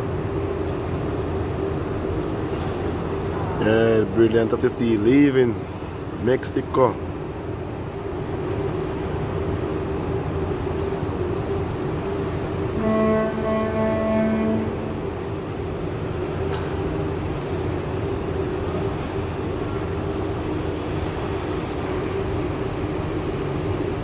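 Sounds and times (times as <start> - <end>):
cruise ship engine drone: 0.0 - 24.0
rushing noise: 11.1 - 24.0.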